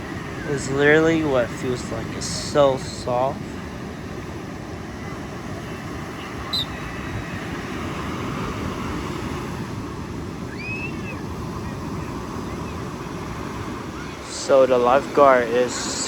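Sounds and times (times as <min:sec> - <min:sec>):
surf on a beach: 0:00.0 - 0:16.0
wind: 0:00.0 - 0:16.0
faint high chirp: 0:06.4 - 0:06.9, 0:10.5 - 0:11.2
faint distant call: 0:10.4 - 0:16.0.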